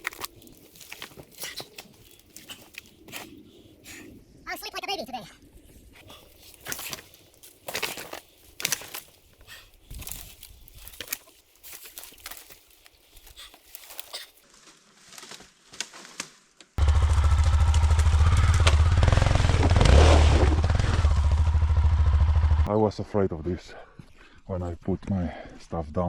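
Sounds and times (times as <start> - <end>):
motorcycle engine running loud: 16.8 - 22.7.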